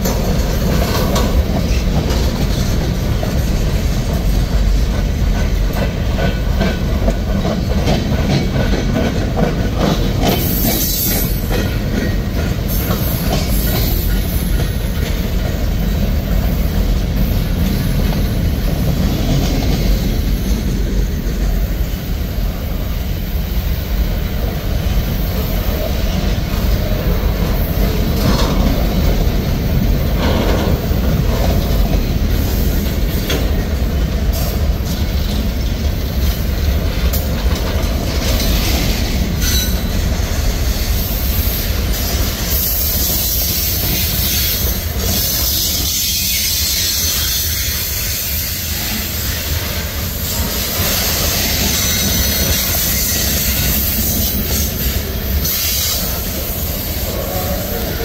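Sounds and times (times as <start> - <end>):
freight train wheels rumbling: 0.0 - 58.0
high wheel squeal: 42.5 - 58.0.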